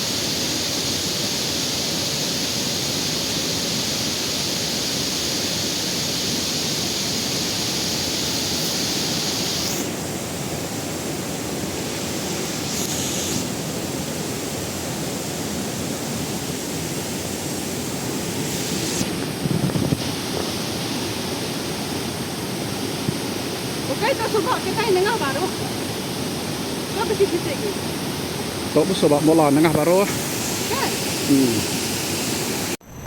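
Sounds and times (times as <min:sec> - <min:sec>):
waterfall rushing: 0:00.0 - 0:32.8
high hiss: 0:00.0 - 0:33.0.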